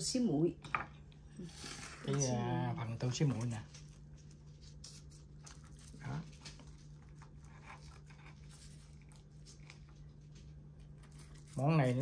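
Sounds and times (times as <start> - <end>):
steady low hum: 0.0 - 12.0
soft chewing: 3.2 - 12.0.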